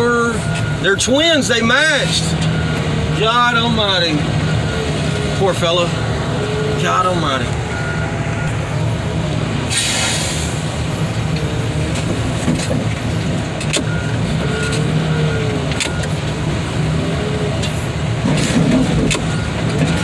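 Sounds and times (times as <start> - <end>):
diesel engine running: 0.0 - 20.0
short hiss: 9.7 - 10.6.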